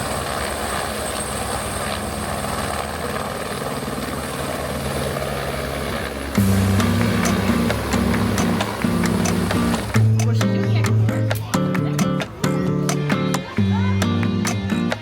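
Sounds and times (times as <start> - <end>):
helicopter flying overhead: 0.0 - 15.0
background music: 6.3 - 15.0.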